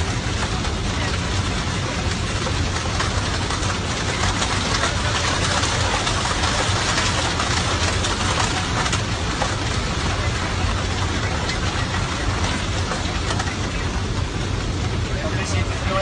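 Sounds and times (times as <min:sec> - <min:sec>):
jet engine drone: 0:00.0 - 0:16.0
rush of air over cockpit: 0:00.0 - 0:16.0.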